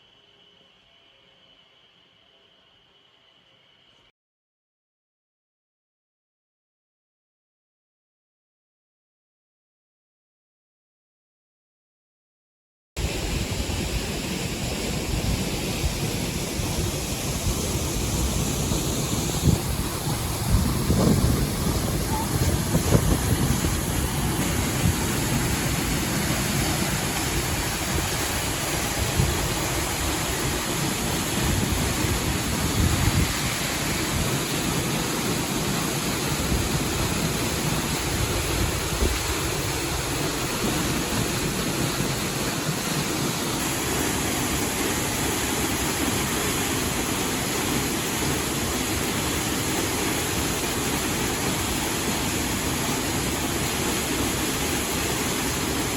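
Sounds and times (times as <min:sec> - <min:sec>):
wind gusts on microphone: 0:13.0 - 0:42.8
river water rushing: 0:13.0 - 0:55.9.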